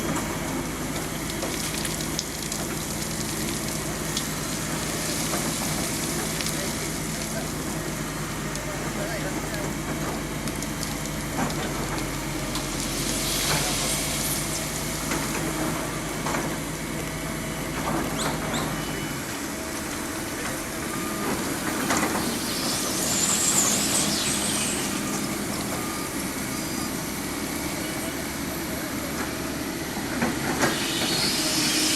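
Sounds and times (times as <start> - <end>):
heavy vehicle engine drone: 0.0 - 31.9
high wavering squeal: 20.9 - 27.9, 30.5 - 31.9.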